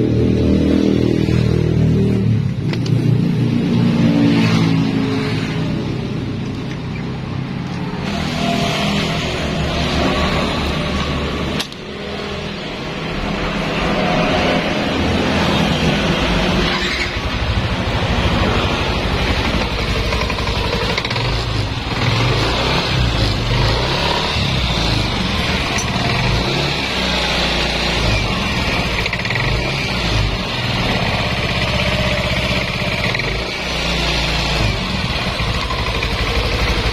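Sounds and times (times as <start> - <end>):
scooter engine running: 14.6 - 36.9.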